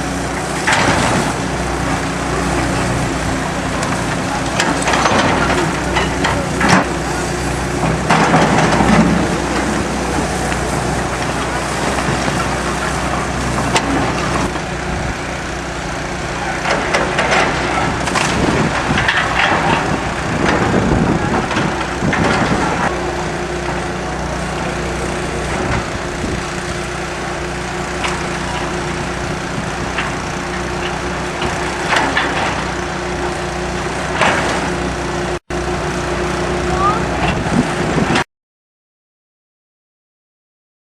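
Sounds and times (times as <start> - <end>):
heavy machinery running: 0.0 - 38.2
wood cracking and splintering: 16.8 - 22.9.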